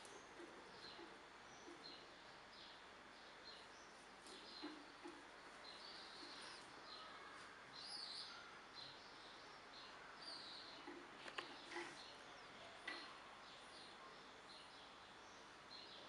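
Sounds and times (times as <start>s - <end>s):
faint high chirps: 5.7s - 16.0s.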